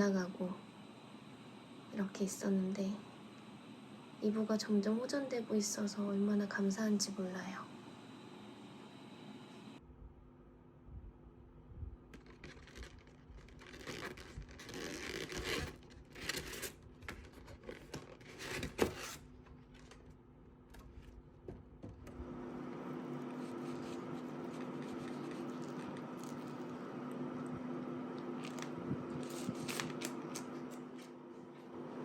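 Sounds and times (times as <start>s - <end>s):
steady hum with fixed tones: 0.0s - 15.2s
rustling and scraping: 12.2s - 20.1s.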